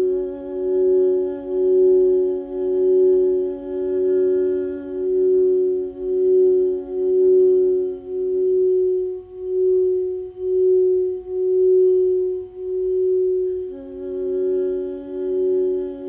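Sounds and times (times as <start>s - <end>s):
singing bowl ringing: 5.0s - 15.9s.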